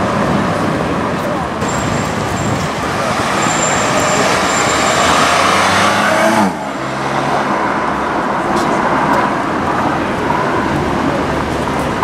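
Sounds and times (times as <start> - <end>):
car engine accelerating past: 4.3 - 7.5.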